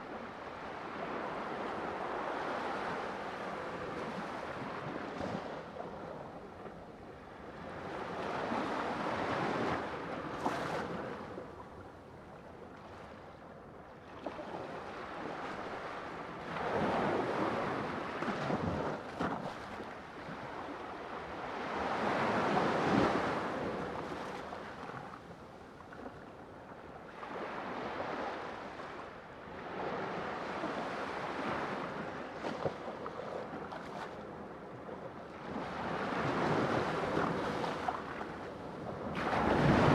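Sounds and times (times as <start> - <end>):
sea waves washing ashore: 35.8 - 39.9.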